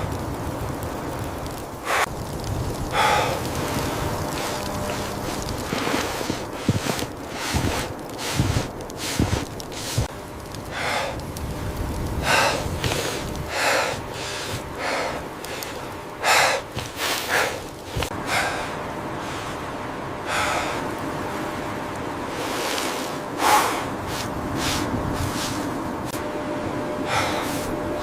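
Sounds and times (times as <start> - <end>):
steady hiss: 0.0 - 28.0
noisy breaths or snorts: 1.8 - 2.1, 2.8 - 10.1, 10.7 - 11.4, 12.2 - 19.6, 22.4 - 25.7, 27.0 - 28.0.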